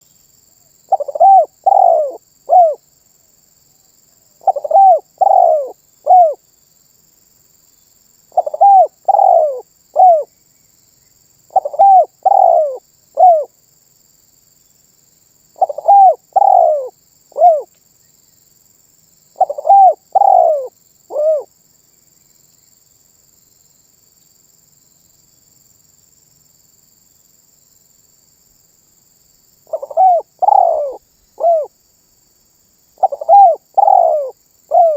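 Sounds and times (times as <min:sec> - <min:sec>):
dove cooing: 0:00.9 - 0:02.8, 0:04.4 - 0:06.4, 0:08.3 - 0:10.3, 0:11.5 - 0:13.5, 0:15.6 - 0:17.7, 0:19.4 - 0:21.5, 0:29.7 - 0:31.7, 0:33.0 - 0:34.9.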